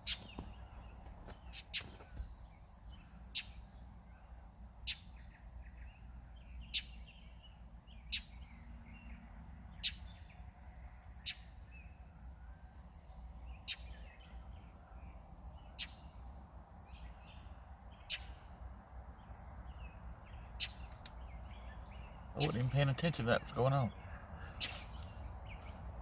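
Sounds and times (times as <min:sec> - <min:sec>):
faint bird chirps: 0:00.0 - 0:26.0
bird sharp call notes: 0:23.9 - 0:25.2.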